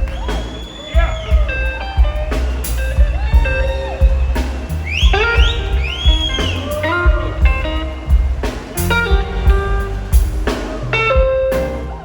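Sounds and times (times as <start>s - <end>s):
blues band playing: 0.0s - 12.0s
electric guitar bending notes: 1.4s - 12.0s
kick drum beat: 5.0s - 6.5s, 7.1s - 8.4s, 9.1s - 10.4s.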